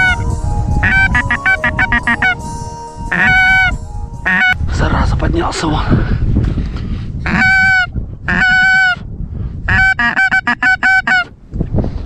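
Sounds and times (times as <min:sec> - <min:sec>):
wind rumble on microphone: 0:00.0 - 0:12.0
goose honking: 0:07.3 - 0:09.0, 0:09.7 - 0:11.3.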